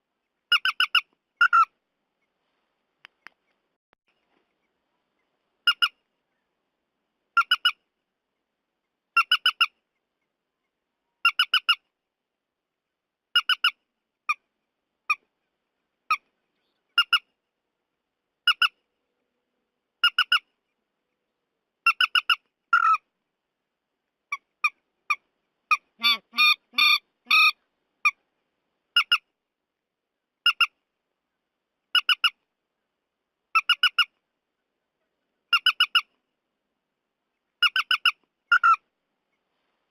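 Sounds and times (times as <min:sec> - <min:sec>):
bird calling: 0:24.3 - 0:28.2, 0:37.6 - 0:38.8.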